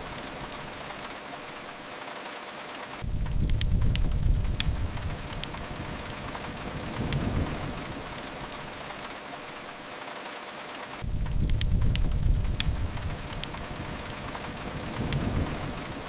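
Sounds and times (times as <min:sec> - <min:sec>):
fireplace crackling: 0:00.0 - 0:16.0
rain on a window: 0:00.0 - 0:16.0
low rumble: 0:03.0 - 0:08.0, 0:11.0 - 0:16.0.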